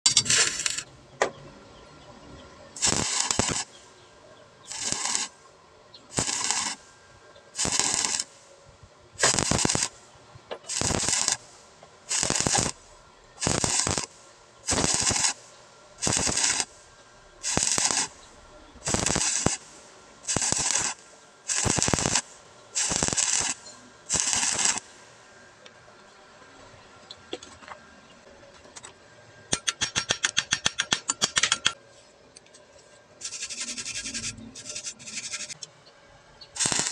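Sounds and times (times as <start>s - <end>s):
welding arc crackling: 0.1s - 0.9s, 2.8s - 3.8s, 4.6s - 5.4s, 6.0s - 6.9s, 7.5s - 8.5s, 9.2s - 25.8s, 33.2s - 35.7s, 36.5s - 36.9s
low steady hum: 12.7s - 13.4s, 15.4s - 19.0s, 19.6s - 20.3s, 31.8s - 36.6s.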